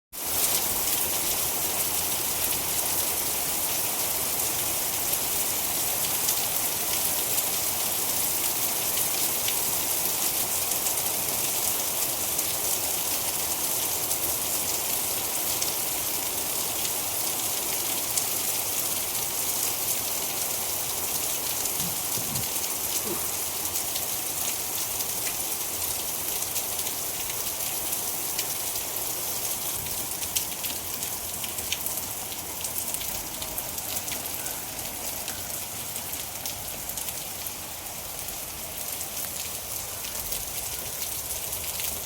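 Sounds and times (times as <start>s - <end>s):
rain pattering: 0.2s - 42.0s.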